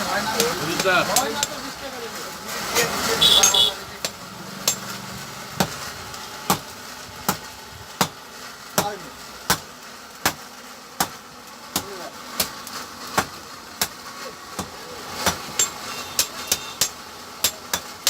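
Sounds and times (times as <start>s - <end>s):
hammer striking metal on anvil: 3.4s - 4.9s, 14.6s - 17.9s.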